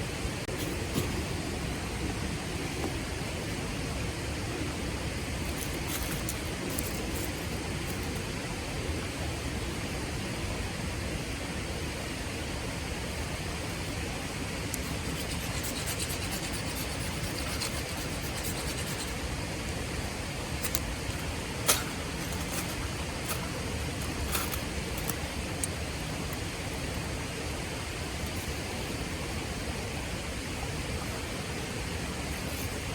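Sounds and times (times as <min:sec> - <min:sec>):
wood fire crackling: 0:20.4 - 0:27.2.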